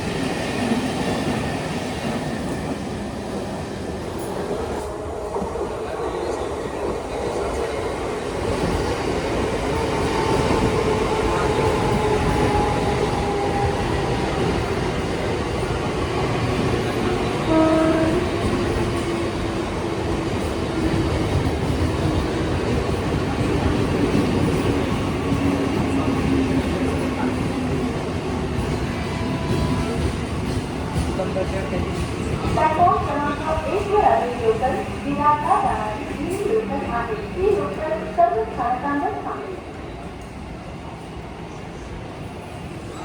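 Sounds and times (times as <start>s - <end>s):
train wheels rumbling on rails: 0.0s - 43.0s
train horn blast: 17.4s - 18.6s.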